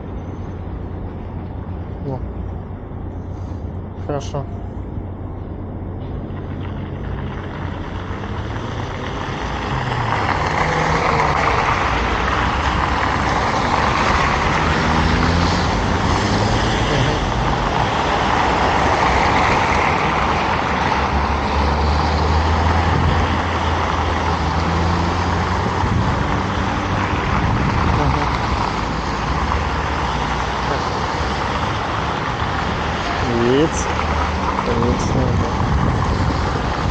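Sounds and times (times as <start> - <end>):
heavy vehicle engine drone: 0.0 - 36.9
road traffic passing: 0.0 - 36.9.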